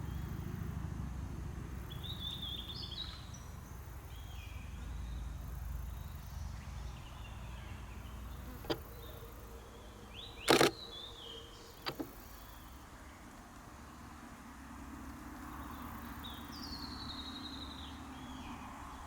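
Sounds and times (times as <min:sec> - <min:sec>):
camera shutter clicking: 0:10.5 - 0:10.8.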